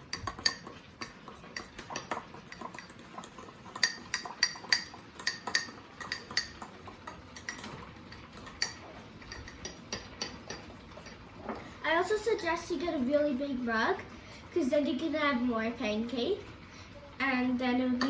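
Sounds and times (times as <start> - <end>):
fork clinking in a mug: 1.6 - 11.2.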